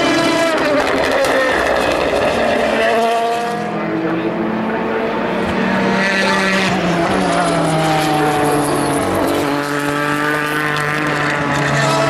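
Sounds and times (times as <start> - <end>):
race car engines passing: 0.0 - 12.0.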